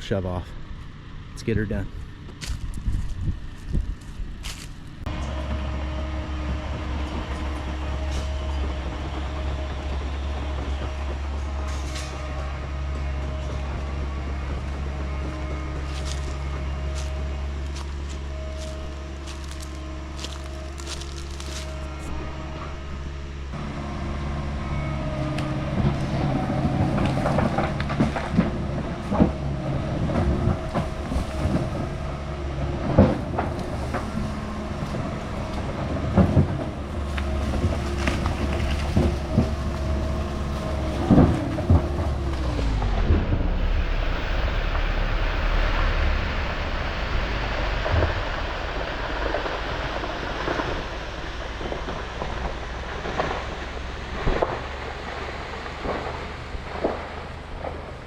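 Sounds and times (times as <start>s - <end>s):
heavy diesel engine under load: 0.0s - 58.0s
knocks and clanks of stump dragged: 1.5s - 58.0s
steady rumble with hiss: 30.0s - 58.0s.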